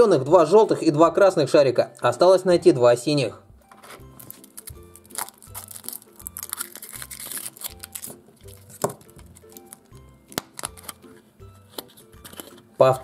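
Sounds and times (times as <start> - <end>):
foil wrapper crinkling and tearing: 3.8 - 11.0
chocolate shell cracking: 4.2 - 12.7.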